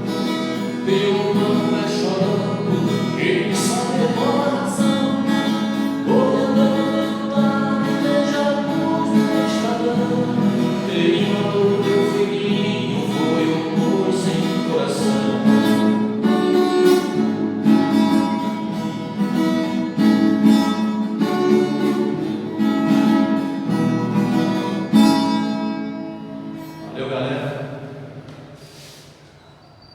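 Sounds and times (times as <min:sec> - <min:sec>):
acoustic guitar: 0:00.0 - 0:29.9
person singing: 0:00.6 - 0:16.3.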